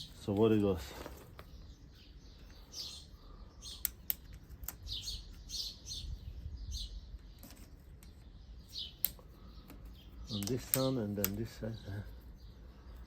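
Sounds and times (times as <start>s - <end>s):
small birds chirping: 0.0s - 13.0s
sharp clicks: 3.7s - 4.9s, 8.9s - 9.8s, 10.4s - 11.5s.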